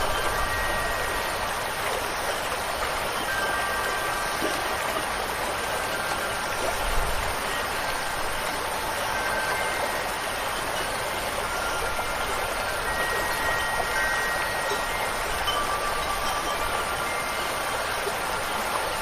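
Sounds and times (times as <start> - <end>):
faint wind chime tones: 0.0 - 19.0
rain and running water: 0.0 - 19.0.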